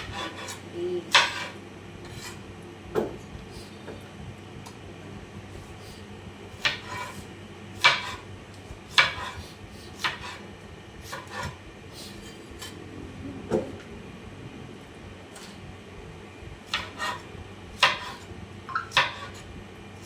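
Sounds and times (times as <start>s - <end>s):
knife blade scraping: 0.0s - 2.4s
knife cutting on a cutting board: 0.0s - 2.4s, 5.5s - 8.3s, 8.9s - 12.8s, 16.7s - 19.5s.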